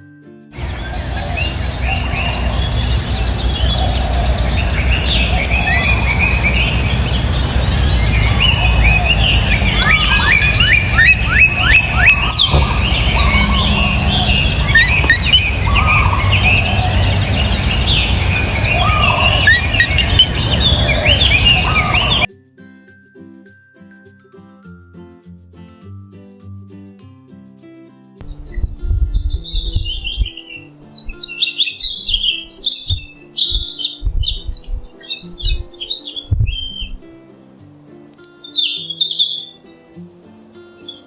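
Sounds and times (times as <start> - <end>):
low rumble: 0.6 - 20.9, 28.2 - 30.5, 32.2 - 35.7
birds chirping and singing: 0.6 - 22.3, 28.2 - 41.0
quick repeated bird notes: 0.6 - 22.3, 28.2 - 41.0
steady high whine: 0.6 - 22.3.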